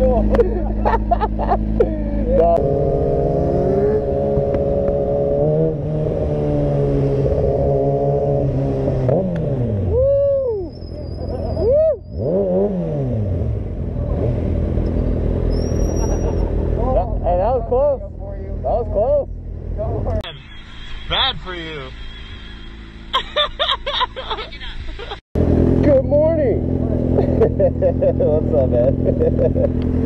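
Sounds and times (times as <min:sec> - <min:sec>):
motorcycle engine revving: 0:00.0 - 0:23.5, 0:25.4 - 0:30.0.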